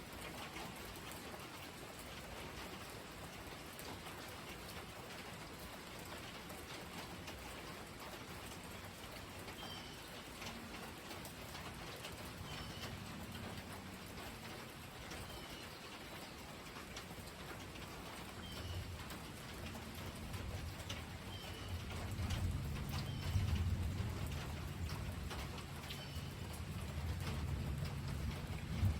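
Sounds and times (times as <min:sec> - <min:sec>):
steady rain falling: 0:00.0 - 0:28.9
water drips: 0:00.1 - 0:28.9
low rumble of thunder: 0:19.8 - 0:28.9
bird chirping: 0:23.0 - 0:23.5, 0:25.8 - 0:26.5.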